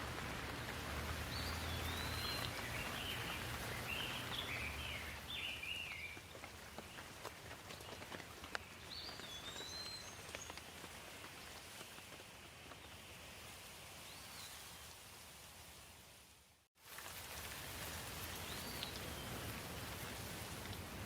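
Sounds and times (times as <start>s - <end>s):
water drips: 0.0s - 12.2s, 16.8s - 21.0s
soft steady rain: 0.0s - 21.0s
bird chirps: 1.3s - 6.2s.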